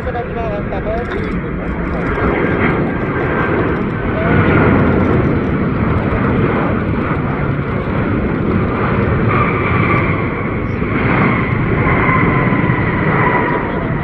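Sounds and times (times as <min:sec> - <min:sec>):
jet engine whine: 0:00.0 - 0:14.0
jet engines rumbling: 0:00.0 - 0:14.0.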